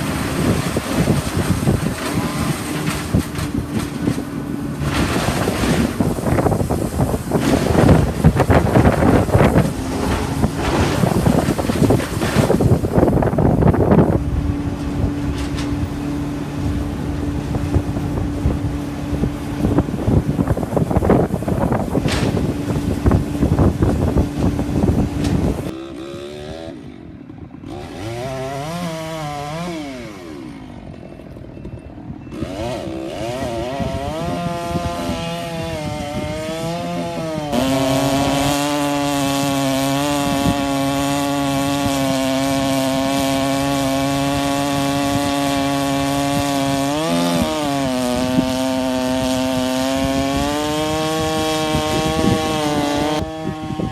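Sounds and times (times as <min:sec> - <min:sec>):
chainsaw engine revving: 0:00.0 - 0:03.5, 0:04.7 - 0:12.8, 0:25.1 - 0:31.1, 0:32.3 - 0:53.9.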